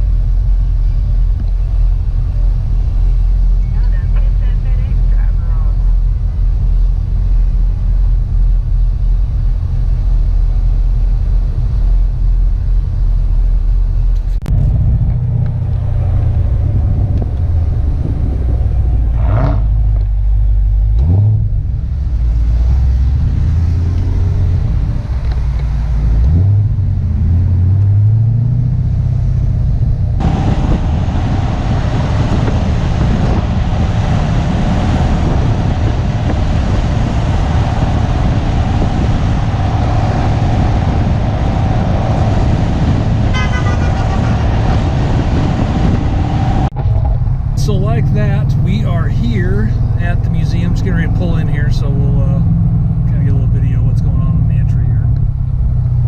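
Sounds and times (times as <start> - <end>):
car engine revving: 0.0 - 56.0
road noise: 0.0 - 56.0.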